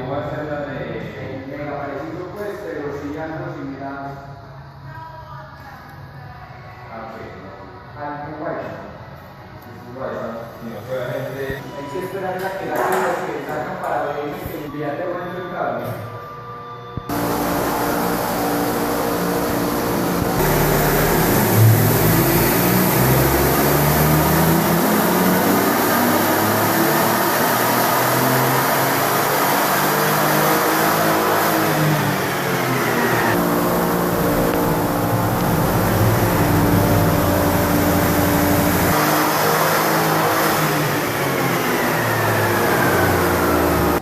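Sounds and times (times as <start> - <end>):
high whine falling in pitch: 17.0 - 44.0
car engine revving: 17.1 - 44.0.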